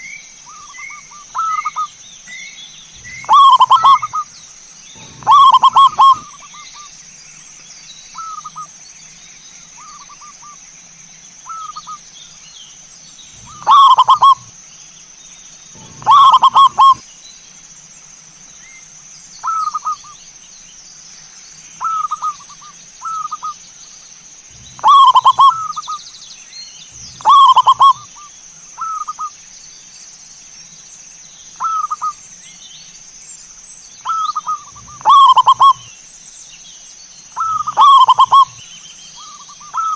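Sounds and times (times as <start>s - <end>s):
doves cooing: 3.0s - 4.3s, 4.9s - 6.8s, 13.4s - 14.5s, 15.8s - 17.0s, 24.5s - 26.0s, 26.9s - 28.2s, 34.1s - 35.9s, 37.4s - 38.6s, 39.2s - 39.9s.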